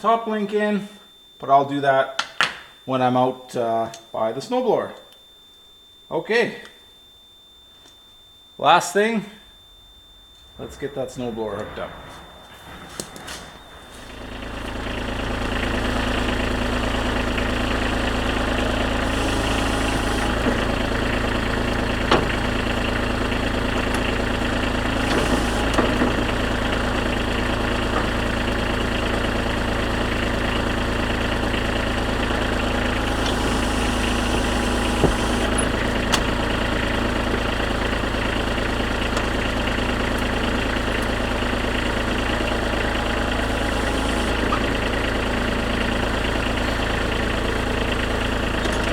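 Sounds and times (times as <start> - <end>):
diesel tractor engine idling: 10.5 - 48.9.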